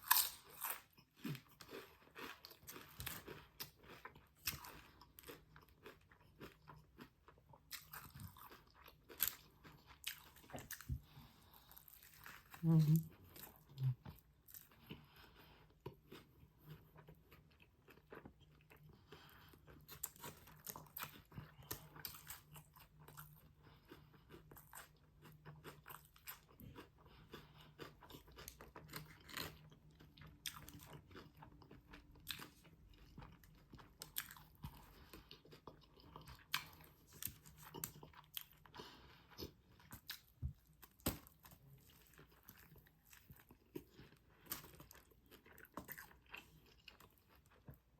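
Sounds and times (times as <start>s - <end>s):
person chewing crunchy food: 0.0s - 47.9s.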